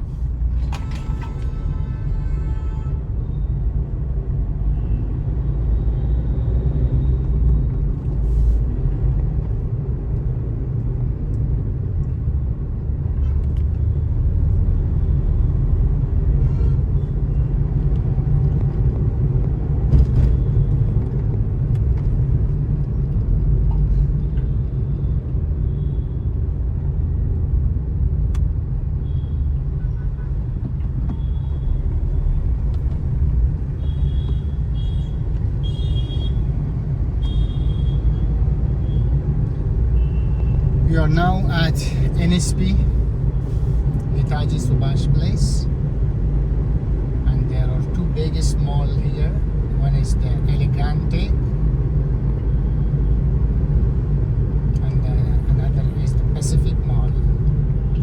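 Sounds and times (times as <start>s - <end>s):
vehicle driving rumble: 6.7s - 58.0s.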